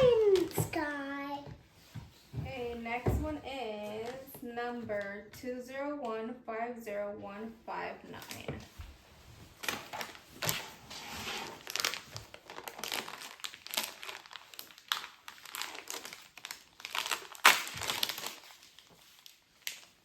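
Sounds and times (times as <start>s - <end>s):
plastic packaging crinkling: 9.6s - 20.0s.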